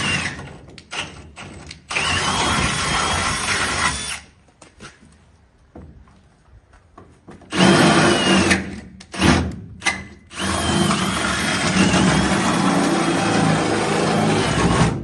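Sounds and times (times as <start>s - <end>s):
power drill whining: 0.0s - 4.3s, 7.5s - 15.0s.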